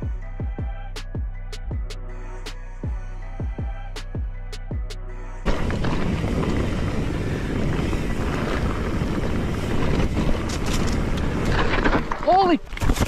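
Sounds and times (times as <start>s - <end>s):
wind buffeting microphone: 5.5s - 13.0s.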